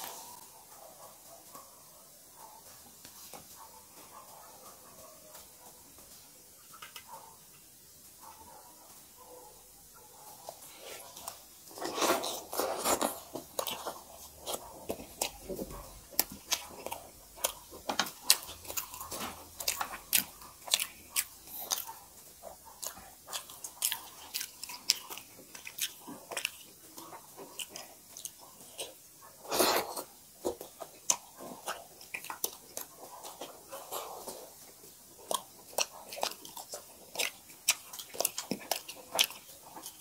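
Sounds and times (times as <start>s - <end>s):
wet chewing and lip smacking: 10.2s - 40.0s.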